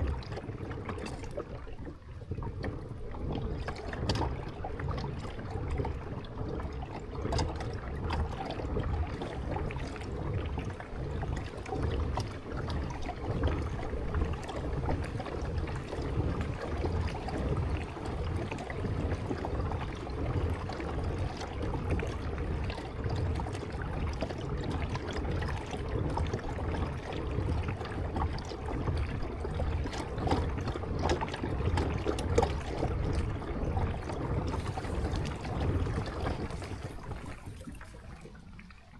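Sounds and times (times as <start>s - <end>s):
kayak paddle dipping and dripping: 0.0s - 38.9s
water moving along hull: 0.0s - 38.9s.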